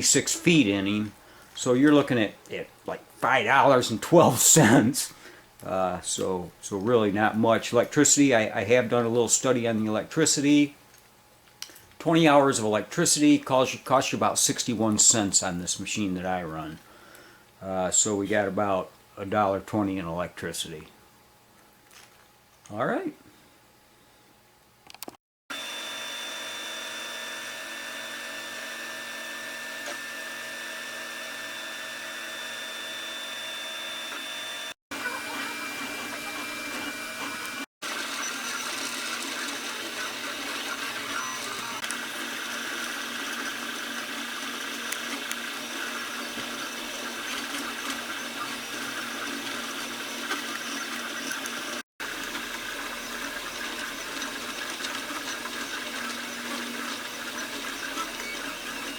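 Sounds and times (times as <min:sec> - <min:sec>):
three d printer motors whining: 0:25.5 - 0:58.9.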